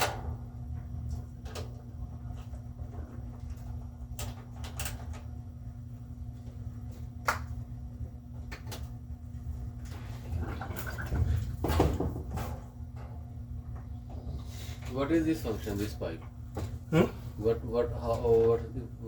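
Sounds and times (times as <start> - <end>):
knocks and clunks on washing machine: 0.0 - 1.8, 10.3 - 13.2
steady low hum: 0.0 - 19.0.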